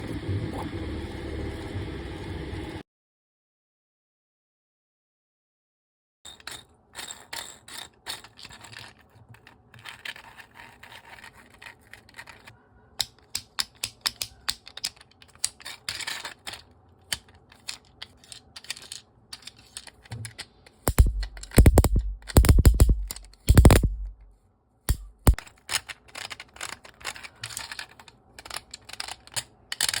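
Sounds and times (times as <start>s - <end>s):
fidget toy clicking and sliding: 7.6s - 24.3s, 24.9s - 30.0s
fidget toy deep rattling: 20.7s - 24.3s.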